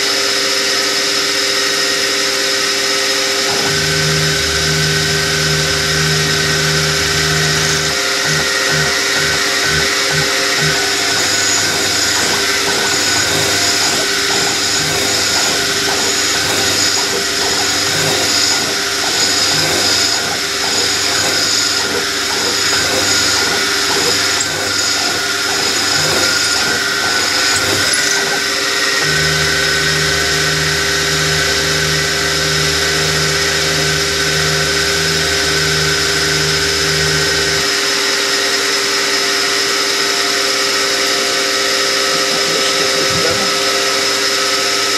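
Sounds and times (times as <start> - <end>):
drill cutting metal: 0.0 - 44.9
machine tool motor running: 0.0 - 44.9
low pulsing hum: 3.5 - 37.6.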